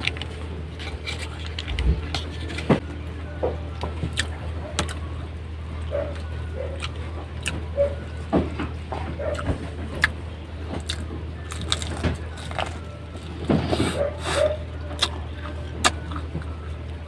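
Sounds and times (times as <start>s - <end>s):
crunchy chewing: 0.0s - 2.8s, 4.1s - 5.1s, 5.8s - 10.2s, 10.8s - 16.9s
low hum: 0.0s - 17.0s.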